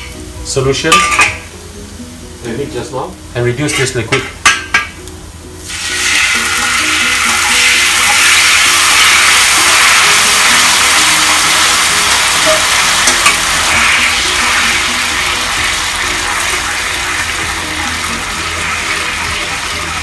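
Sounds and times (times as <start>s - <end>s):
sauce sizzling in a hot wok: 0.0s - 20.0s
sauce pouring into a wok: 5.6s - 20.0s.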